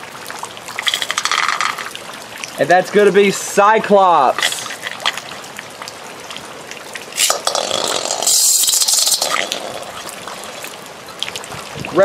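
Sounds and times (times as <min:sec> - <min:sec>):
water rushing: 0:00.0 - 0:12.0
water trickling: 0:00.0 - 0:12.0.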